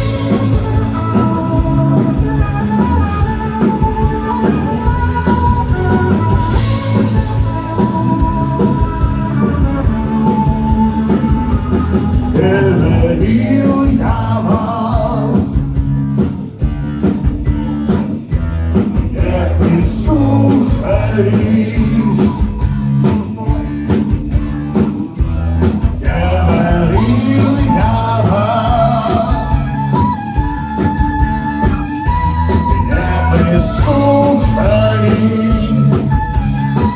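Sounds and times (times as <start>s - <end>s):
drums: 0.0s - 36.9s
electric guitar: 0.0s - 36.9s
person singing: 4.0s - 15.7s, 19.0s - 23.0s, 26.0s - 31.2s, 32.5s - 36.9s.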